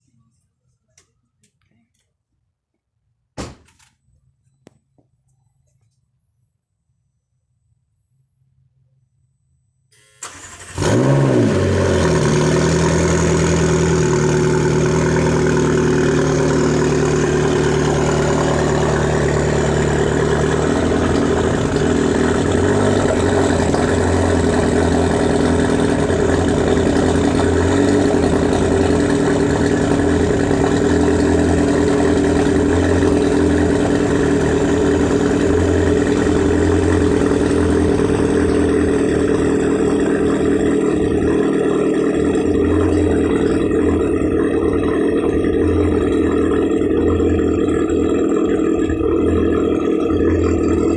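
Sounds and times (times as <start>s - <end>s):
car engine idling: 10.0s - 50.9s.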